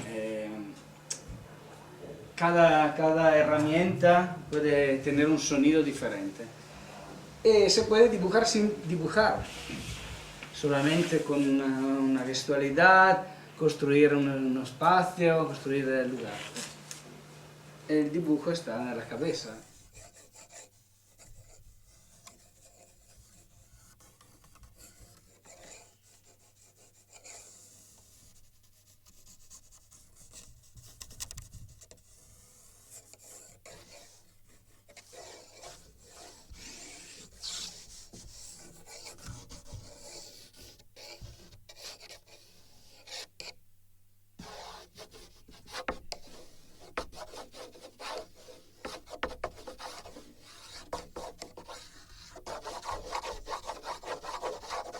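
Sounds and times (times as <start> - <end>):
faint steady hum: 0.0 - 54.9
drawing strokes on wooden board: 19.4 - 43.6, 44.4 - 54.9.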